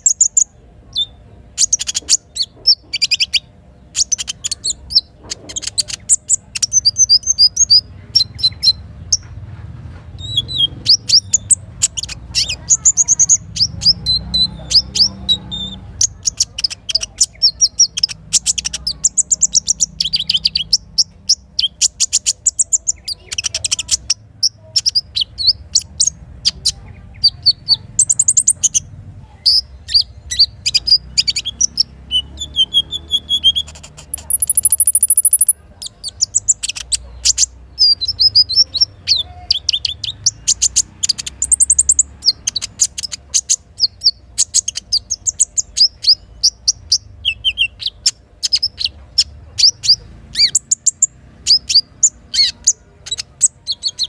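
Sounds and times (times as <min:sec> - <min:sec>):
songbird chirps and trills: 0:00.0 - 0:54.0.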